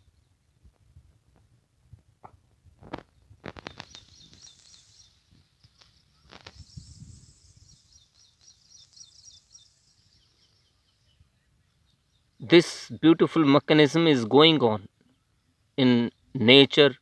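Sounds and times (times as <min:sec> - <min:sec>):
small bird chirping: 0:03.0 - 0:12.5.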